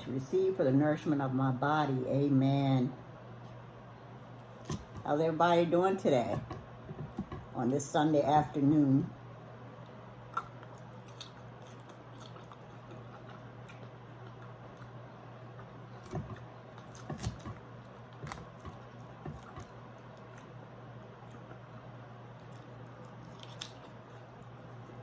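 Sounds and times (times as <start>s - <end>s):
steady low hum: 0.0s - 25.0s
faint chewing: 9.8s - 20.6s, 21.2s - 25.0s.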